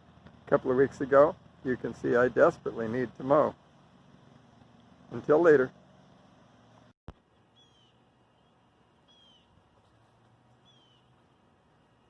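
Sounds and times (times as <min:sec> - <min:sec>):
faint bird chirping: 0:07.2 - 0:12.0.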